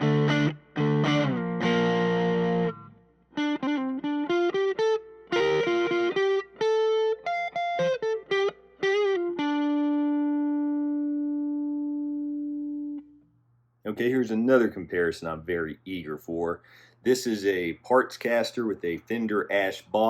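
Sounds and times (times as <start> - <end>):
overdriven electric guitar: 0.0 - 13.2.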